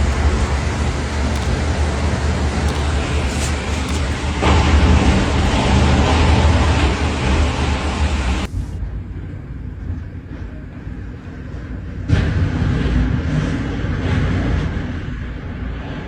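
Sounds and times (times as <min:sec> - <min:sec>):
strong wind roaring: 0:00.0 - 0:16.0.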